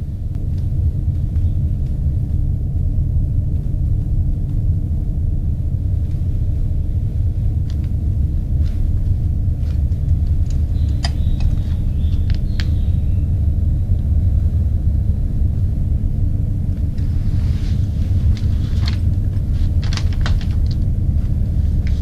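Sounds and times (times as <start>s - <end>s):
deep low rumble: 0.0s - 22.0s
faint clicks: 9.6s - 12.8s.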